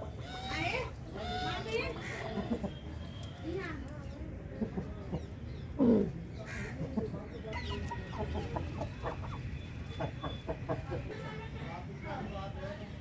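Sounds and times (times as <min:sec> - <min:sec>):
chickens clucking: 0:00.0 - 0:03.3, 0:04.4 - 0:11.1.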